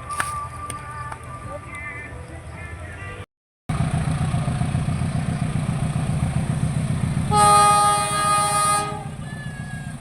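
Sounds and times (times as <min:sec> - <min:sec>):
diesel locomotive engine rumbling: 0:03.7 - 0:10.0
locomotive horn blast: 0:07.3 - 0:09.2.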